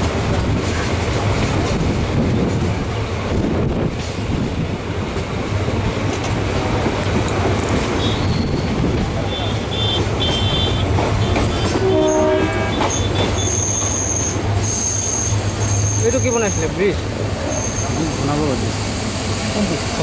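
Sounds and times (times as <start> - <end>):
train rumbling on rails: 0.0 - 20.0
wheels squealing: 7.8 - 18.6.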